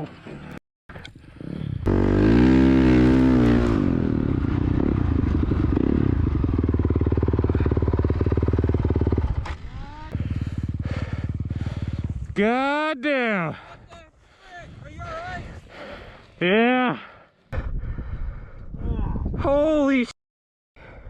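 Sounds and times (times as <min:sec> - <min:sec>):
dirt bike engine revving: 0:01.3 - 0:12.4.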